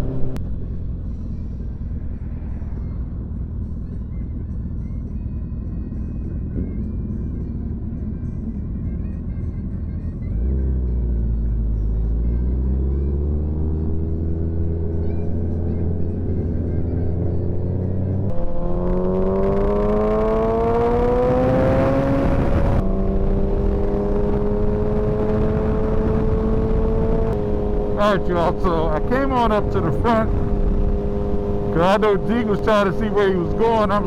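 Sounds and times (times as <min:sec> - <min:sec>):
motorcycle engine accelerating: 0:00.0 - 0:34.0
wind noise: 0:18.3 - 0:28.0.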